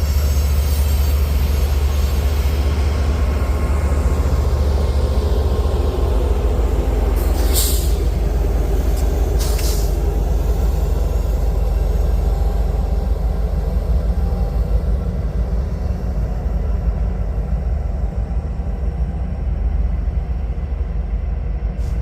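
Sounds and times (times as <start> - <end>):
train passing rumble: 0.0 - 22.0
air hisses: 7.2 - 11.5.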